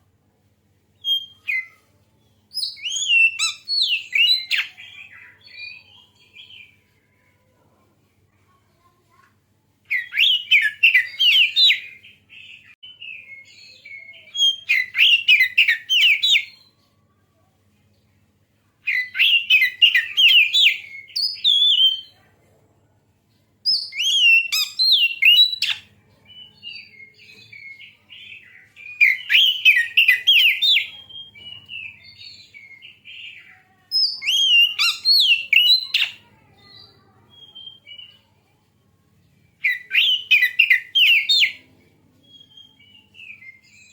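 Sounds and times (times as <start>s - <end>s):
bird warbling song: 23.7s - 38.2s
soft bird twittering: 23.7s - 38.5s.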